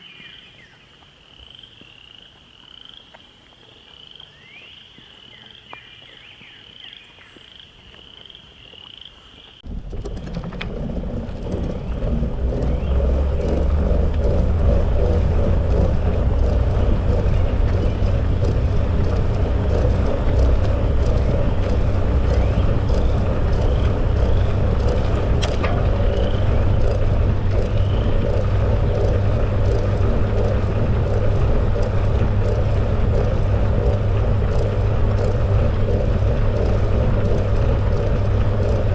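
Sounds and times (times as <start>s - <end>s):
frogs chirping: 0.0s - 9.7s
wind and bicycle riding noise: 0.0s - 38.9s.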